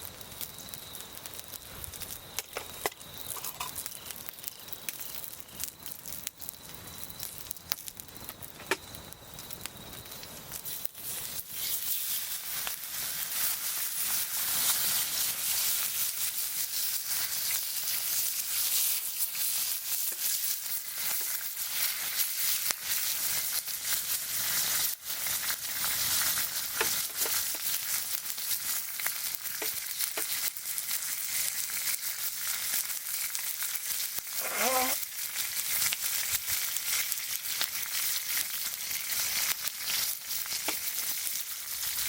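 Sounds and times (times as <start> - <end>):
fire pops and crackles: 0.0 - 42.0
meat sizzling: 0.0 - 42.0.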